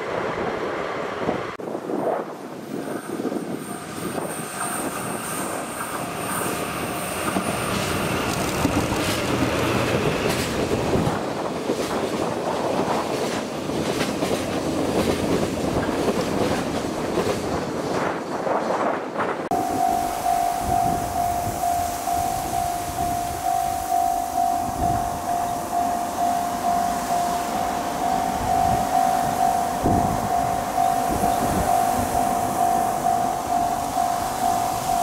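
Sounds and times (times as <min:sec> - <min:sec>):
high wheel squeal: 0:02.9 - 0:08.8.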